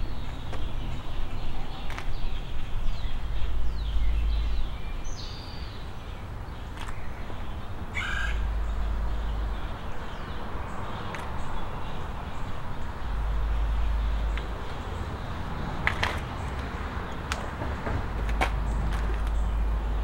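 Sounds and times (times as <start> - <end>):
birds chirping: 0.0 - 20.0
bird cawing: 7.9 - 8.6.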